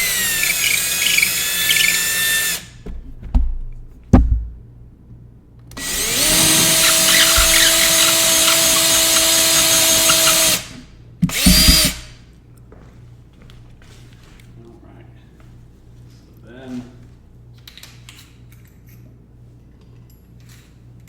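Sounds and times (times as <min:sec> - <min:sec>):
power drill whining: 0:00.0 - 0:02.8, 0:05.8 - 0:12.2
sharp knocks: 0:06.2 - 0:10.6, 0:11.2 - 0:12.1.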